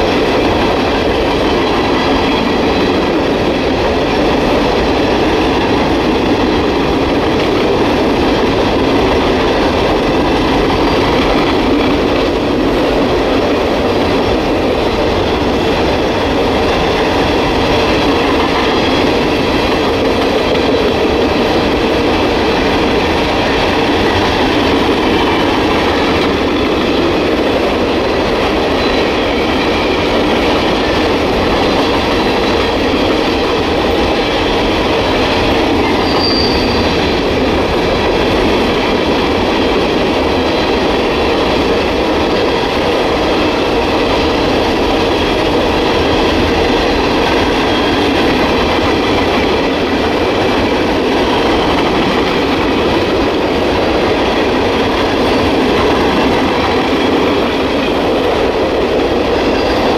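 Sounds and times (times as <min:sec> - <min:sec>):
train wheels rumbling and rattling: 0:00.0 - 0:59.9
wheels squealing: 0:35.8 - 0:37.2.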